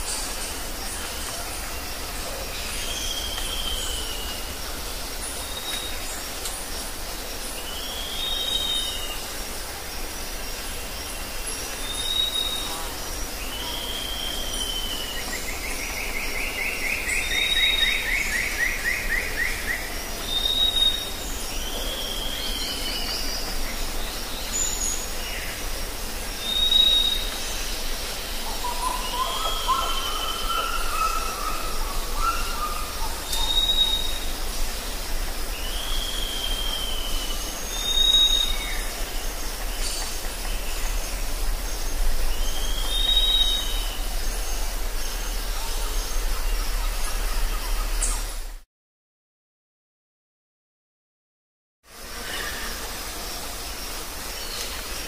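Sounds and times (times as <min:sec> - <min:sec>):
birds calling: 0:00.0 - 0:48.5
bird trill: 0:28.6 - 0:34.2.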